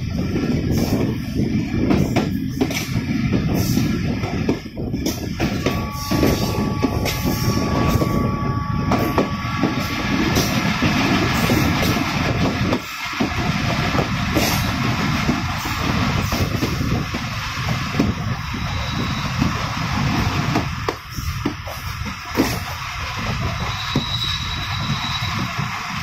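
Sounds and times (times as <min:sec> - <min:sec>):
train wheels rumbling on rails: 0:00.0 - 0:26.0
thin high tone: 0:05.8 - 0:09.2.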